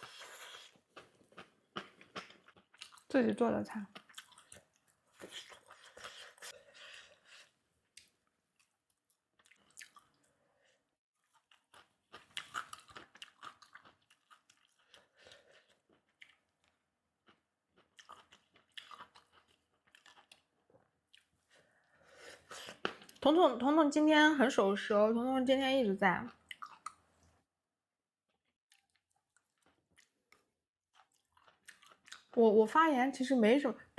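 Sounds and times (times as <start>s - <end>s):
crunchy chewing of food: 0.0s - 3.1s, 3.9s - 10.4s, 11.2s - 23.2s, 26.3s - 27.4s, 28.3s - 32.4s.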